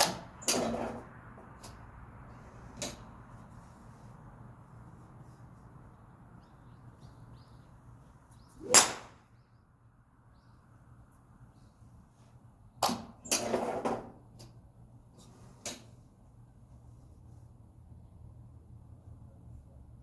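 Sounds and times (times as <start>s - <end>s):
golf club striking ball: 8.6s - 9.2s.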